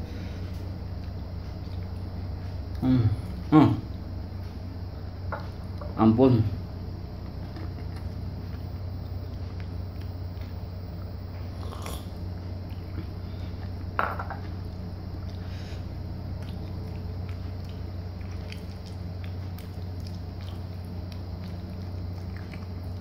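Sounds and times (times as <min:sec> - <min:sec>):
low hum: 0:00.0 - 0:23.0
person chewing: 0:08.5 - 0:10.6, 0:11.4 - 0:23.0.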